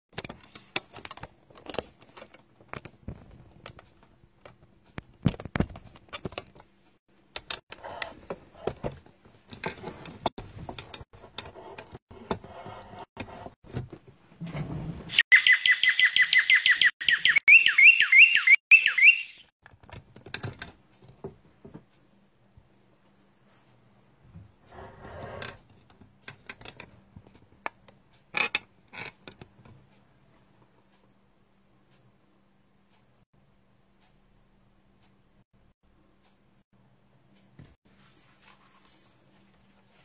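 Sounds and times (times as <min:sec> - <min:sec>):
bird chirping rapidly: 0:15.1 - 0:19.5.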